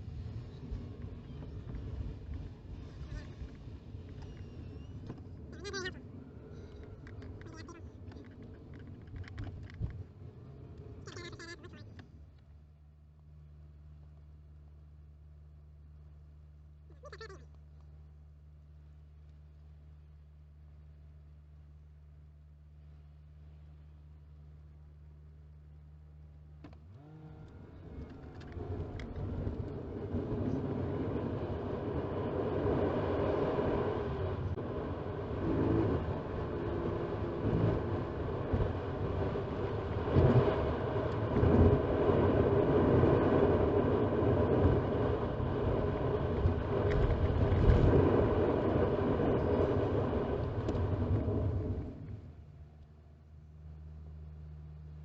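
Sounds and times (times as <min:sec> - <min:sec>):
road noise: 0:00.0 - 0:55.0
car engine inside cabin: 0:18.8 - 0:55.0.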